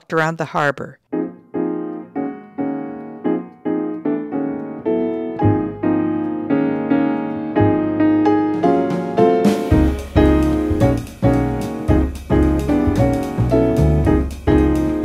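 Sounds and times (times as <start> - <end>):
piano notes: 1.1 - 15.0.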